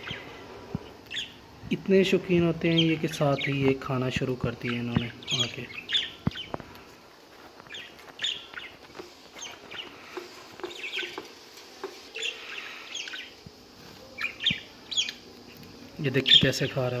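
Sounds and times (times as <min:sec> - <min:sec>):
budgerigars chirping: 0:00.0 - 0:00.3, 0:01.1 - 0:01.4, 0:02.7 - 0:03.8, 0:04.6 - 0:06.6, 0:07.7 - 0:08.8, 0:09.4 - 0:11.2, 0:12.2 - 0:13.4, 0:14.1 - 0:15.2, 0:16.2 - 0:16.8.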